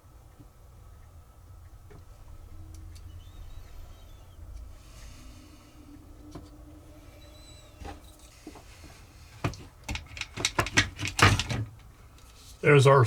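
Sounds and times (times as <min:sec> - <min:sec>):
faint steady hum: 0:00.0 - 0:13.0
tools clicking and tapping: 0:09.4 - 0:11.6.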